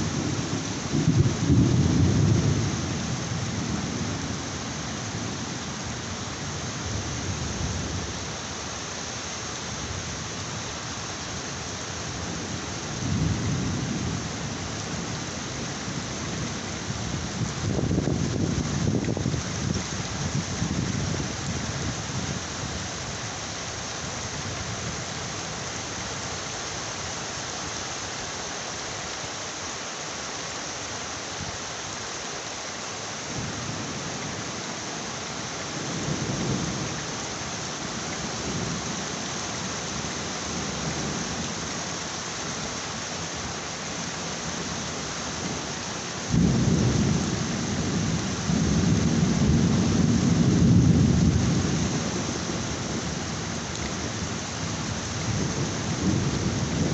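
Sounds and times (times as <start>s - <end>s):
thunder rumbling: 0.0s - 3.3s, 46.3s - 53.2s, 54.0s - 56.9s
heavy rain: 0.0s - 56.9s.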